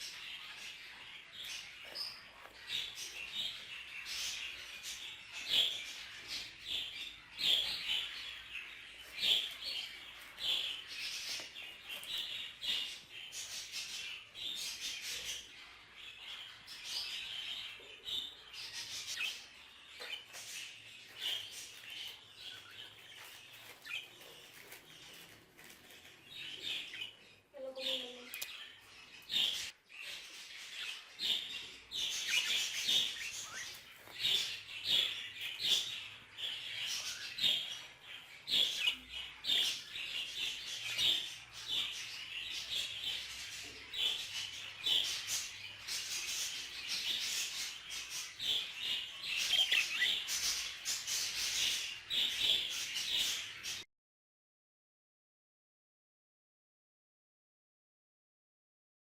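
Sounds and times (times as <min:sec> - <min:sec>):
budgerigars chattering: 0:00.0 - 0:25.3, 0:27.8 - 0:53.8.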